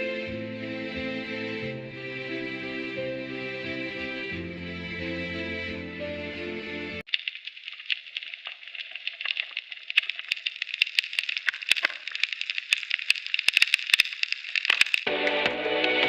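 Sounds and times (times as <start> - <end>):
snapping shrimp crackling: 7.1 - 15.1.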